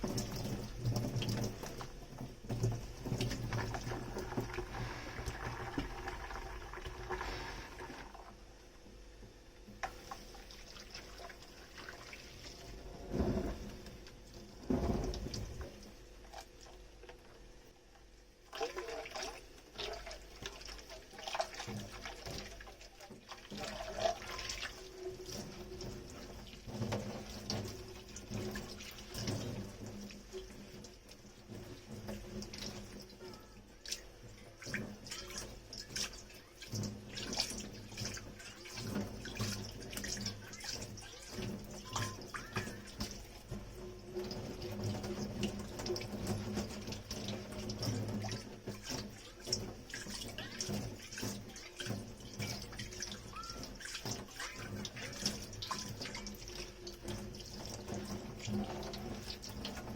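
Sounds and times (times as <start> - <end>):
scrubbing dishes: 0.0 - 8.3, 18.5 - 59.9
tap water running and splashing: 0.0 - 59.9
dishes clinking and knocking: 41.8 - 43.2.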